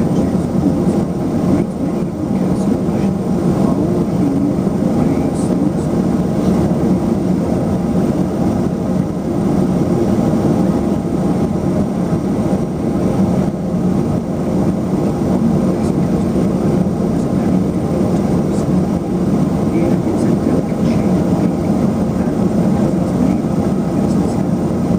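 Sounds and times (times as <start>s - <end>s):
turboprop engines droning: 0.0s - 24.9s.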